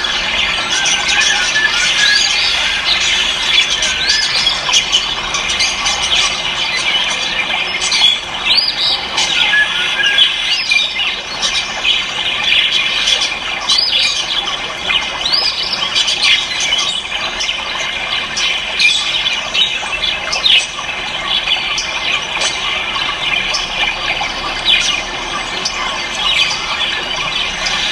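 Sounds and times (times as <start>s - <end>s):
caged birds squawking and chirping: 0.0s - 27.9s.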